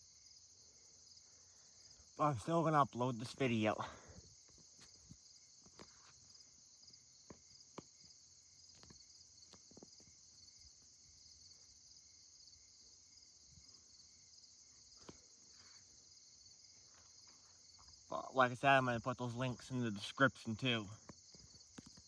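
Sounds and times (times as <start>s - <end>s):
crickets chirring: 0.0s - 22.0s.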